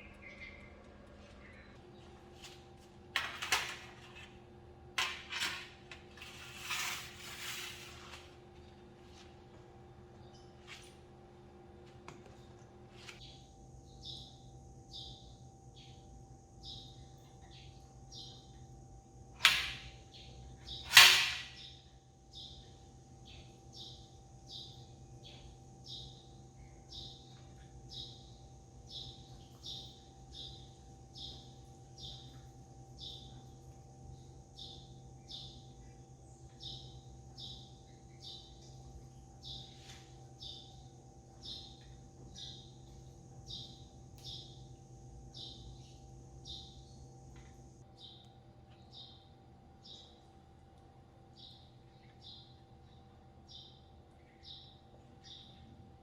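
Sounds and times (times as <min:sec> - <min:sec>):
small bird chirping: 0:00.0 - 0:02.0, 0:13.2 - 0:18.7, 0:20.1 - 0:47.2, 0:47.9 - 0:50.3, 0:51.3 - 0:55.8
steady low hum: 0:00.0 - 0:56.0.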